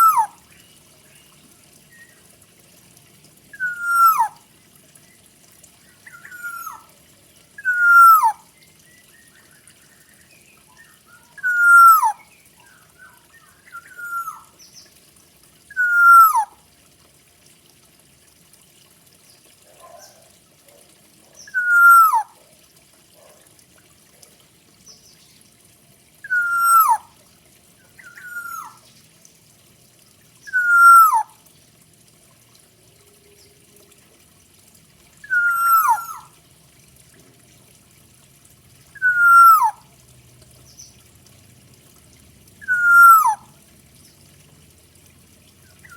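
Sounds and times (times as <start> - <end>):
bird whistling downward notes: 0.0 - 0.3, 3.6 - 4.3, 7.6 - 8.4, 10.8 - 12.2, 13.7 - 14.4, 15.7 - 16.5, 21.5 - 22.2, 26.2 - 27.0, 28.0 - 28.8, 30.5 - 31.3, 35.2 - 36.3, 39.0 - 39.8, 42.6 - 43.4.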